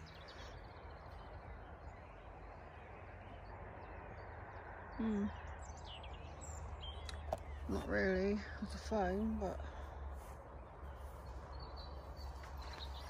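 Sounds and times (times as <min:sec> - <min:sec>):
person humming mm: 0:05.0 - 0:05.4.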